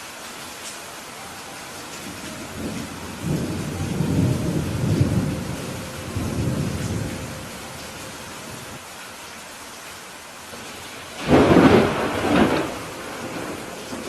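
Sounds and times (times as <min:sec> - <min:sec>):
steady rain: 0:00.0 - 0:14.0
rolling thunder: 0:02.0 - 0:08.8, 0:10.6 - 0:14.0.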